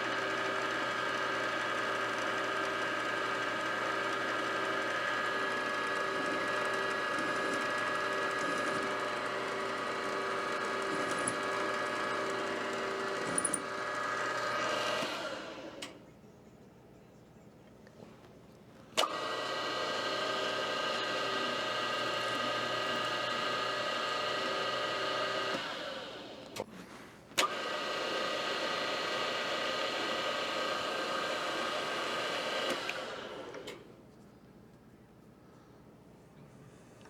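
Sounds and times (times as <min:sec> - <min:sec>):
electric motor running: 0:00.0 - 0:15.9, 0:19.0 - 0:26.6, 0:27.4 - 0:33.7
motor switch click: 0:19.0 - 0:19.6, 0:27.4 - 0:27.8, 0:32.6 - 0:33.8.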